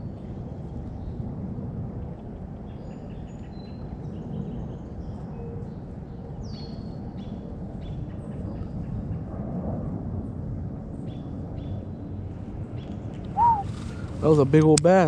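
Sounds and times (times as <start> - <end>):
descending whistle: 13.4 - 13.7
birds chirping: 13.4 - 14.0.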